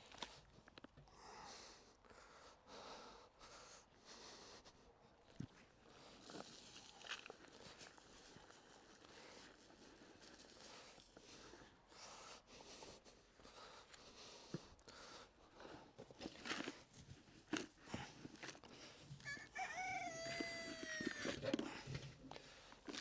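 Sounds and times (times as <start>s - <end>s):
rooster crowing: 19.2s - 21.5s.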